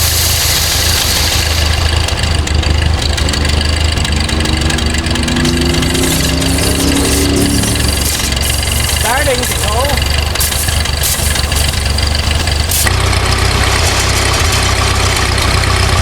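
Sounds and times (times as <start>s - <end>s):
tractor engine running steadily: 0.0s - 16.0s
faint whine rising in pitch: 3.9s - 10.1s.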